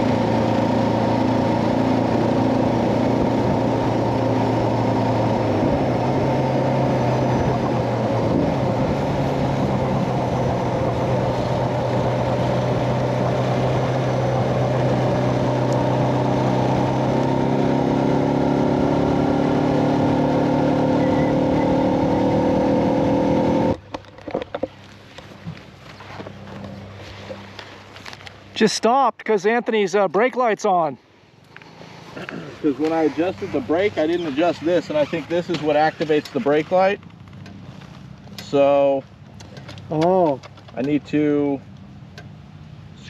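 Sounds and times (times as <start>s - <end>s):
motorcycle engine running: 0.0s - 23.9s, 32.1s - 38.6s
wind rush: 5.4s - 15.5s.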